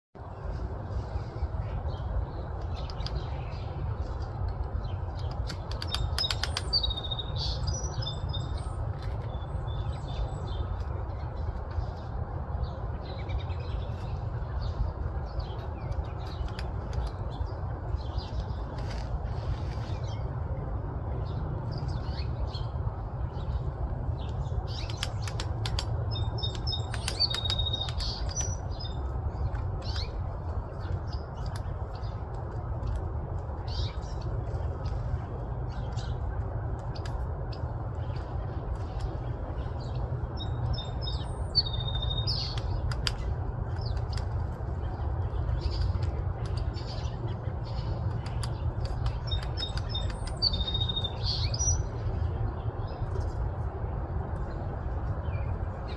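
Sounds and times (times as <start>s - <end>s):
steady low rumble: 0.2s - 55.9s
birds chirping and squeaking: 21.2s - 53.4s.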